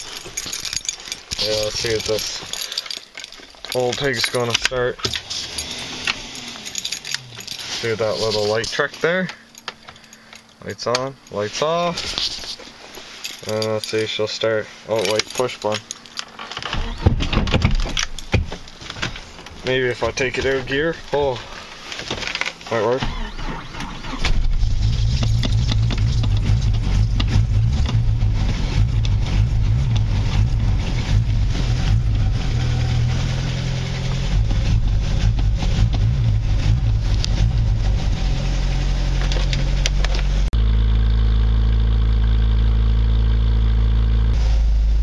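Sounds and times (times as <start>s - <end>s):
car engine starting and revving: 3.7s - 9.6s, 22.9s - 45.0s.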